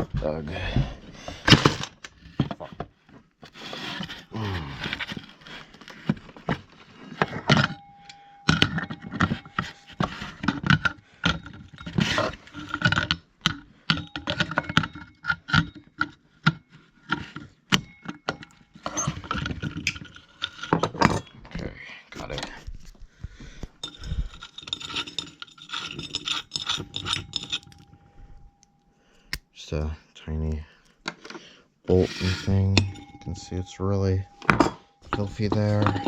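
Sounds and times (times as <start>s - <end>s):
tools clicking and scraping metal: 3.4s - 21.5s, 23.6s - 29.5s, 31.0s - 36.0s
faint ringing tone: 7.3s - 11.8s, 26.5s - 29.3s, 31.9s - 36.0s.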